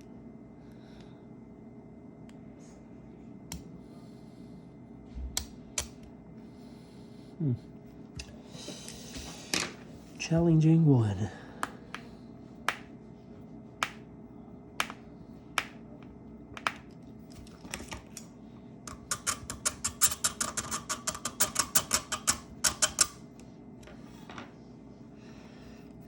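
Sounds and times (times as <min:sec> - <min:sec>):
metal tool clicking on small parts: 0:18.9 - 0:23.2.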